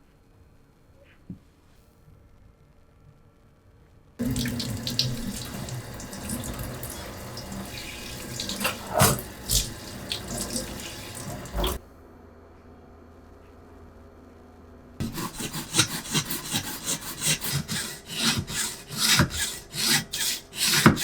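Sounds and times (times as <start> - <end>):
splashes and knocks: 4.2 - 11.8
tap running into sink: 4.2 - 11.8.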